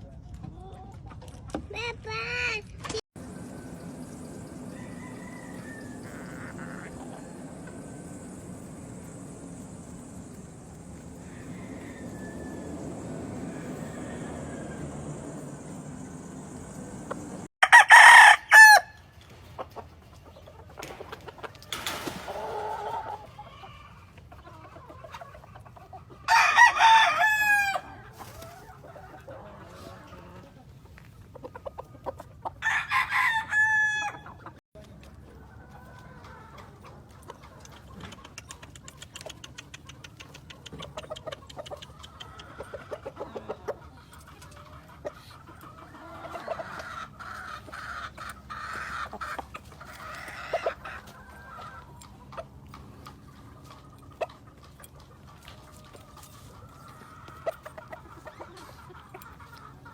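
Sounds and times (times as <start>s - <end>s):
chickens clucking: 3.2s - 17.5s, 18.6s - 59.9s
rooster crowing: 3.2s - 19.0s, 26.3s - 28.0s, 32.6s - 34.3s.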